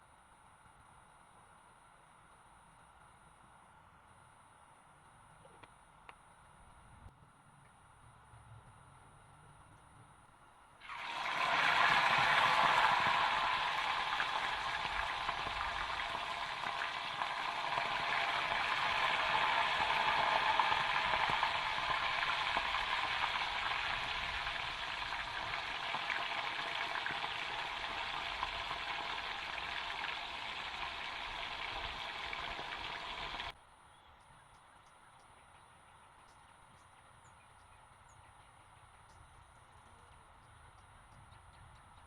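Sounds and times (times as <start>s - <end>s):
chicken frying in hot oil: 10.8s - 33.6s.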